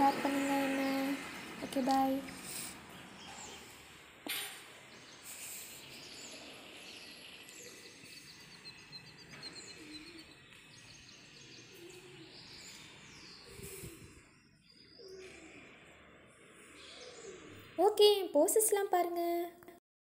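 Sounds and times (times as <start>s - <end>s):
outdoor background hiss: 0.0s - 14.8s
small birds chirping: 0.0s - 19.6s.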